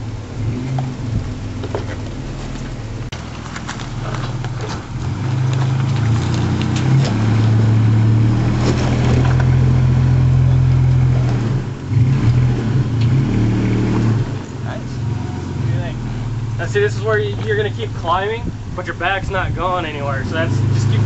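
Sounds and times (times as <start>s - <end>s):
truck engine pulling under load: 0.0s - 21.0s
rocks knocking under tyres: 0.6s - 9.9s.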